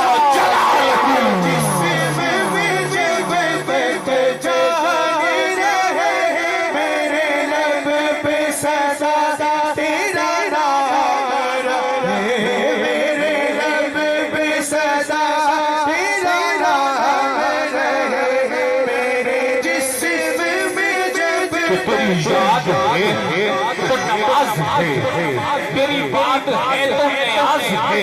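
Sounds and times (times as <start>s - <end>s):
steady held drone: 0.1s - 5.9s
wavering melodic line: 0.4s - 5.0s.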